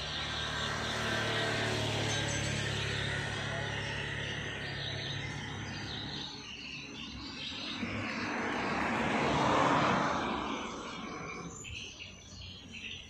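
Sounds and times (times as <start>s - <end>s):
aircraft engine passing over: 0.0s - 11.7s.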